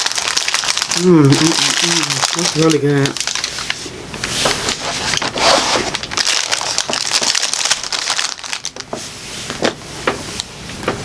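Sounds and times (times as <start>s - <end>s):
person chewing crunchy cookie: 0.0s - 2.7s.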